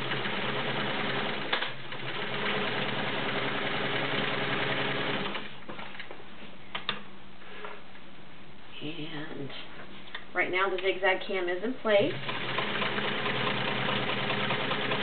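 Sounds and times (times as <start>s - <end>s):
sewing machine running: 0.0s - 5.5s, 12.1s - 15.0s.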